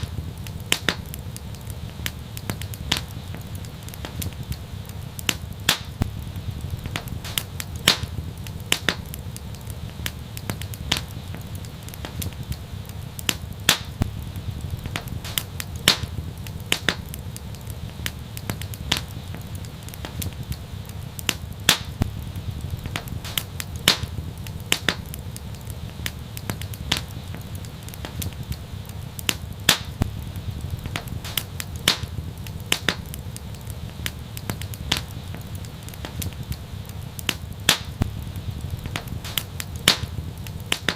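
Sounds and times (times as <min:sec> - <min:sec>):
fire crackling and popping: 0:00.0 - 0:40.9
wood fire rumbling: 0:00.0 - 0:40.9.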